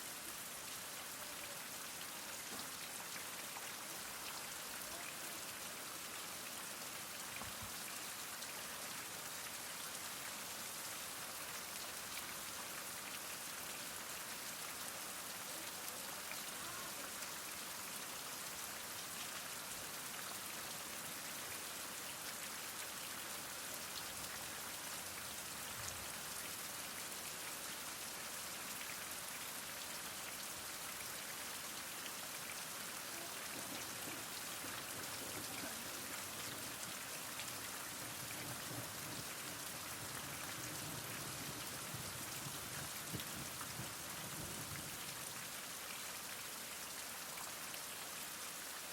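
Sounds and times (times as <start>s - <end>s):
heavy rain falling: 30.6s - 46.3s.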